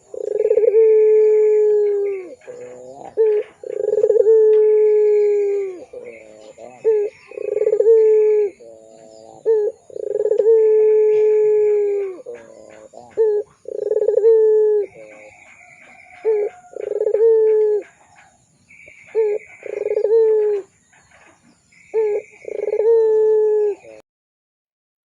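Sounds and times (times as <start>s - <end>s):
higher buzzy bird call: 0.0s - 15.4s, 18.7s - 20.7s, 21.8s - 24.0s
dove cooing: 0.0s - 24.0s.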